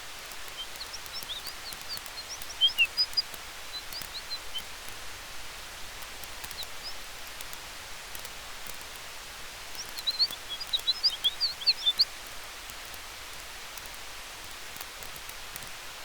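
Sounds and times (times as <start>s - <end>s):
campfire hiss: 0.0s - 16.0s
faint crackling: 0.0s - 16.0s
high chirps: 0.5s - 4.7s, 9.8s - 12.1s.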